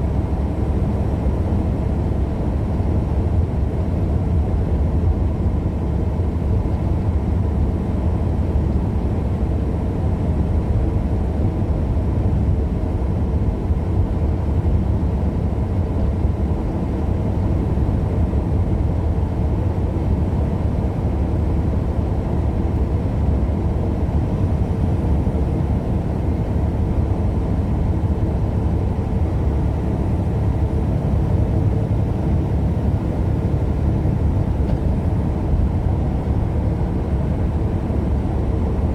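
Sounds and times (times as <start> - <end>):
vehicle engine and road rumble: 0.0 - 38.9.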